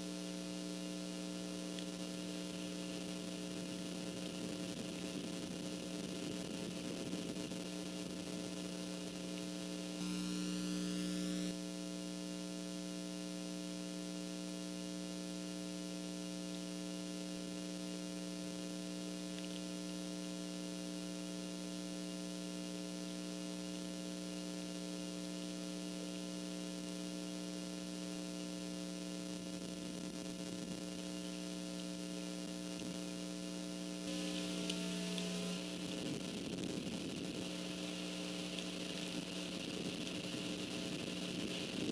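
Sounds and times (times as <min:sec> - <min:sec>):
electrical hum: 0:00.0 - 0:11.6, 0:28.5 - 0:41.9
faint hiss: 0:34.0 - 0:41.9.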